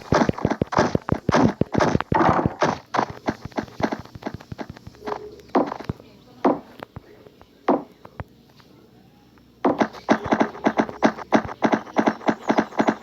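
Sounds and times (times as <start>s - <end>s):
horse hooves clip-clopping: 0.0s - 5.0s, 9.7s - 13.0s.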